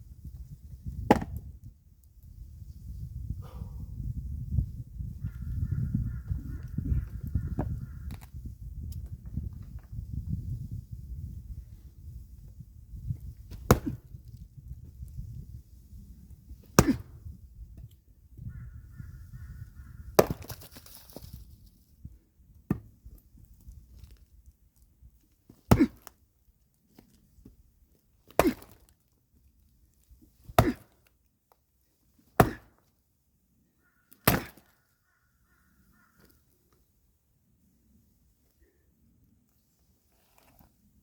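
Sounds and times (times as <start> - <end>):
axe splitting firewood: 0.9 - 1.5, 13.3 - 14.2, 16.6 - 17.2, 20.2 - 20.8, 22.6 - 23.2, 25.5 - 26.2, 28.2 - 28.9, 30.4 - 31.1, 32.2 - 32.8, 34.2 - 34.7.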